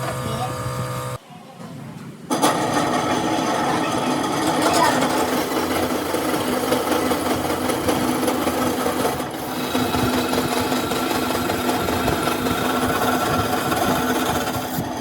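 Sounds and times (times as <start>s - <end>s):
machine clattering and humming: 2.3s - 15.0s.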